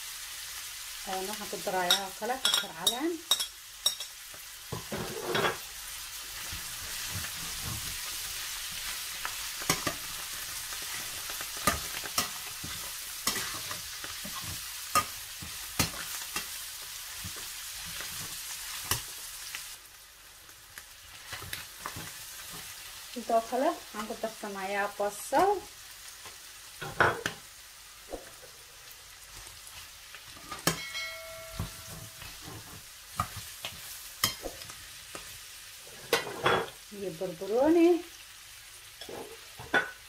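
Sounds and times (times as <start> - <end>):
food sizzling in frying pan: 0.0 - 40.0
spatula scraping pan: 4.7 - 5.7, 6.3 - 19.1, 29.4 - 36.8.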